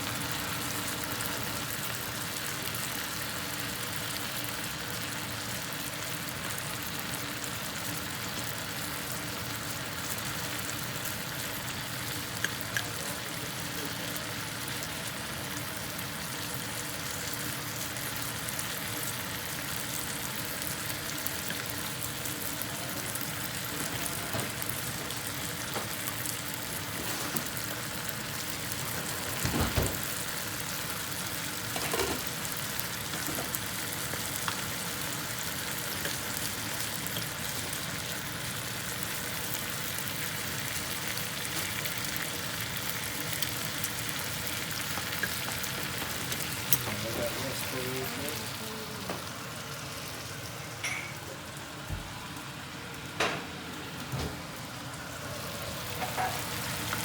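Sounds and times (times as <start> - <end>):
meat sizzling in a pan: 0.0 - 57.0.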